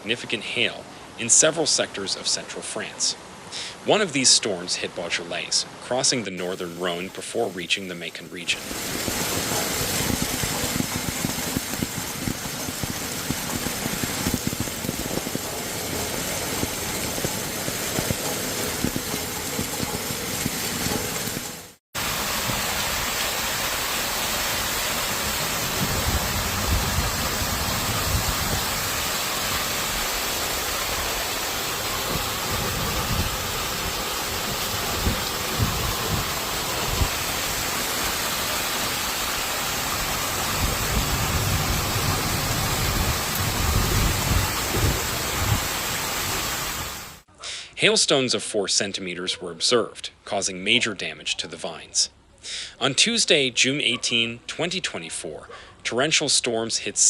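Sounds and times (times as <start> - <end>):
storm downpour roar: 6.4 - 47.2
wind rumbling on microphone: 8.6 - 21.5, 25.1 - 38.0, 39.8 - 47.1.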